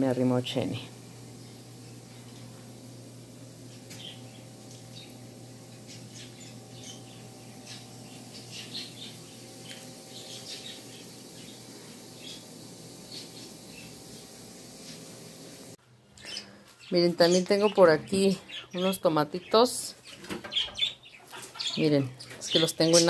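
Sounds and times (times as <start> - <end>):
steady low hum: 0.0 - 15.8
small birds chirping and squawking: 0.6 - 15.1, 16.1 - 23.0.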